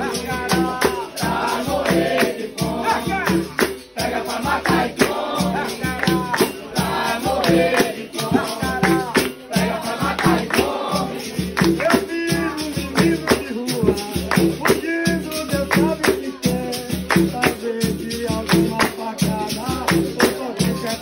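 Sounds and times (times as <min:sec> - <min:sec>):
drum beat: 0:00.0 - 0:21.0
group singing: 0:00.0 - 0:21.0.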